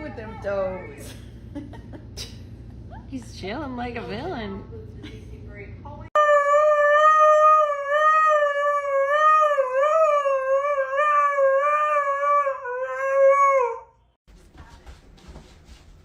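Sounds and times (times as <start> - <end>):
dog howling: 6.2 - 13.9.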